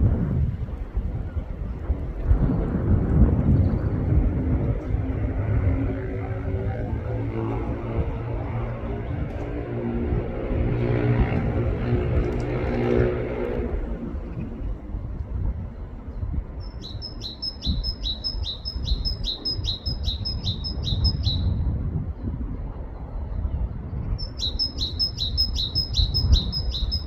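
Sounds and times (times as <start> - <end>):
car passing: 0.8 - 15.5.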